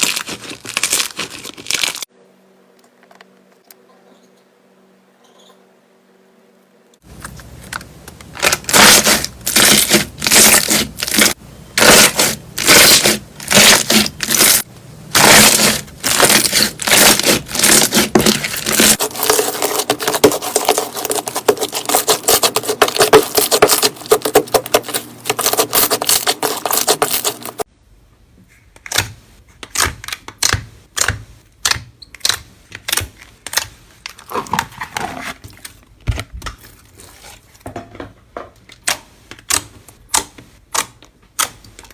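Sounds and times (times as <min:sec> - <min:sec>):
slime crackling and popping: 0:15.2 - 0:27.5.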